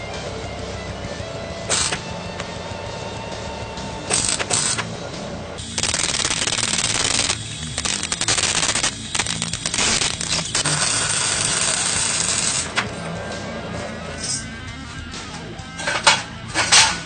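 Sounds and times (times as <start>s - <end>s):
faint background music: 0.0s - 17.0s
loud hissing bursts: 5.6s - 12.7s.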